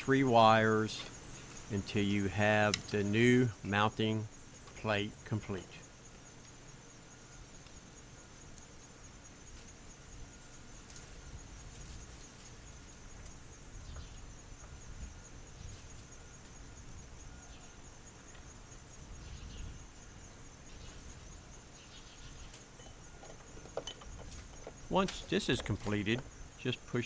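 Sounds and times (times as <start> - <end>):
insects trilling: 0.0 - 27.0.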